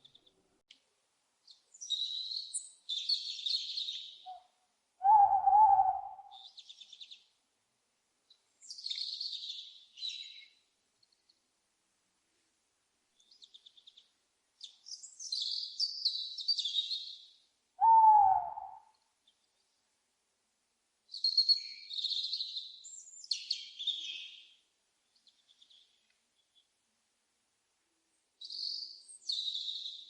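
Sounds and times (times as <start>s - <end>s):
small birds chirping: 0.0s - 0.4s, 1.4s - 7.4s, 8.2s - 11.5s, 13.1s - 19.8s, 21.1s - 26.8s, 28.4s - 30.0s
loud owl hoot: 5.0s - 6.4s, 17.8s - 18.9s.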